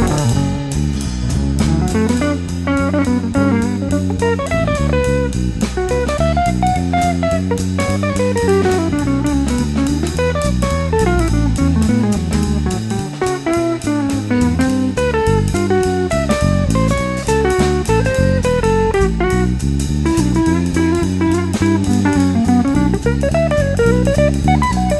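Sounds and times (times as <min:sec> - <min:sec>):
drum kit beat: 0:00.0 - 0:24.9
guitar-led instrumental music: 0:00.0 - 0:24.9.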